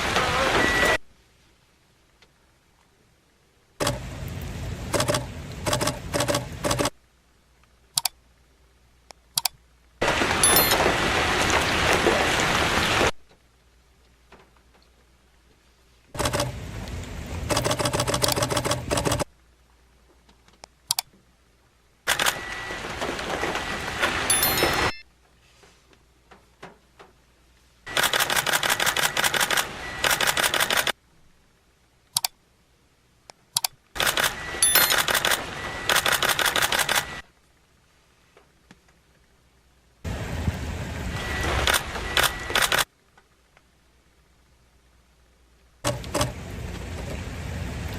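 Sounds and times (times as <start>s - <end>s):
camera shutters firing: 22.1s - 22.5s, 27.9s - 31.0s, 34.0s - 37.2s, 41.6s - 42.9s.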